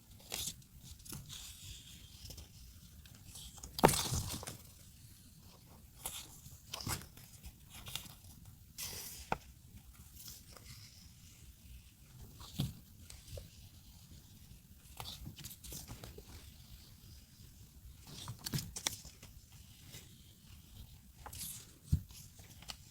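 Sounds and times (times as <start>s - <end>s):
paper rustling and crinkling: 0.2s - 11.4s, 18.0s - 22.9s.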